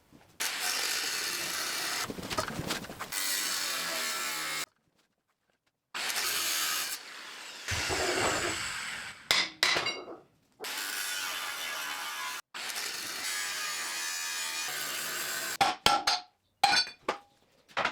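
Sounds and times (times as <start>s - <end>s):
tool grinding steel: 3.1s - 4.7s, 6.0s - 15.6s.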